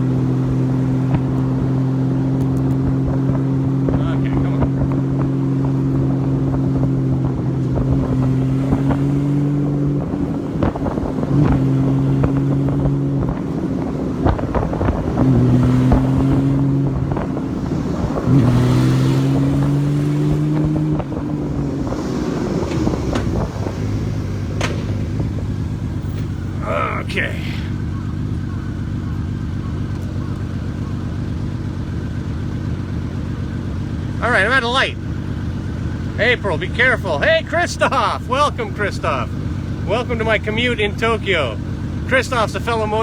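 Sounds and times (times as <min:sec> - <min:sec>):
motorcycle engine running: 0:00.0 - 0:43.0
wind buffeting microphone: 0:04.5 - 0:26.5.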